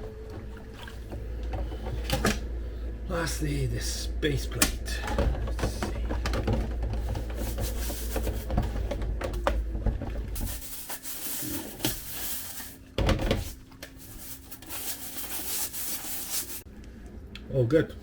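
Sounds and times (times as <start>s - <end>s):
low rumble: 0.0s - 10.6s
brush scrubbing plastic: 5.1s - 16.7s.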